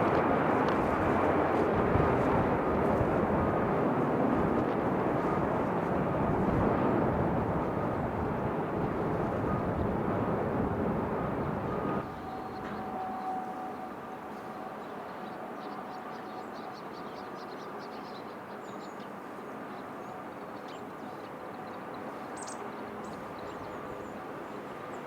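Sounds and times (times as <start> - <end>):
jet engines roaring: 0.0 - 14.5
faint engine whine: 0.0 - 25.0.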